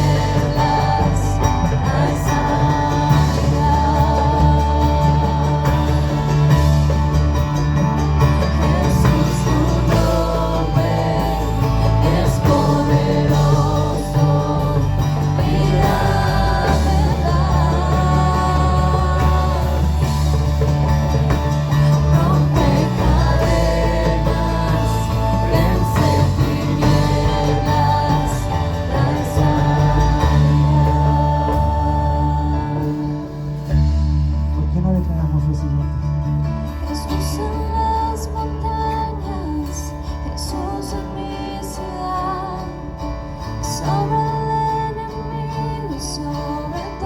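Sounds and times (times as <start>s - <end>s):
person singing: 0.0s - 7.3s, 8.4s - 33.9s
worship band playing: 0.0s - 47.0s.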